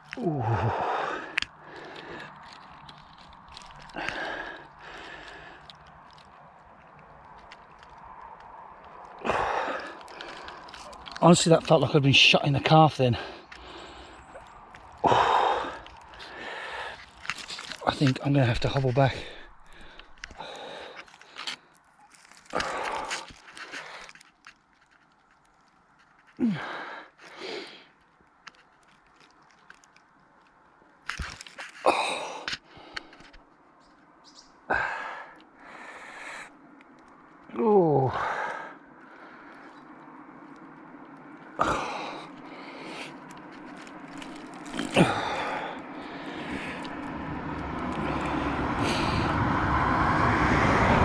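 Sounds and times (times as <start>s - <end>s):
car approaching: 0.0s - 23.3s, 32.8s - 51.0s
man breathing heavily: 0.1s - 6.2s, 9.1s - 11.2s, 13.0s - 24.3s, 26.4s - 28.1s, 31.9s - 33.5s, 34.6s - 36.7s, 37.6s - 40.0s, 41.5s - 50.2s
man groaning in pain: 0.2s - 1.2s, 26.4s - 26.8s, 37.5s - 38.5s, 44.8s - 45.7s
faint footsteps: 13.0s - 26.4s.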